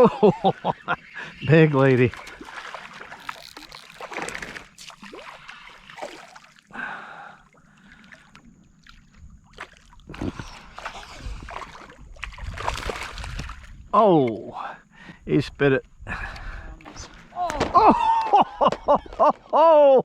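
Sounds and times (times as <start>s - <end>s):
water splashing and sloshing: 0.0s - 14.4s
fish thrashing on the line: 1.5s - 6.7s.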